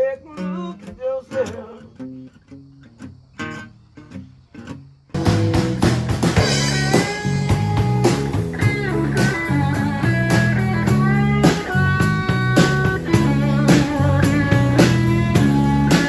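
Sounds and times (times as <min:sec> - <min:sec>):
bass and drums: 0:05.2 - 0:16.0
electric guitar lead: 0:05.2 - 0:16.0.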